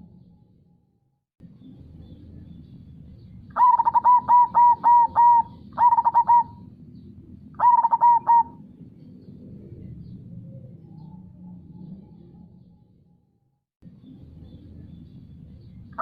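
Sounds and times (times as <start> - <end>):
dove cooing: 3.6 - 6.7, 7.6 - 8.7.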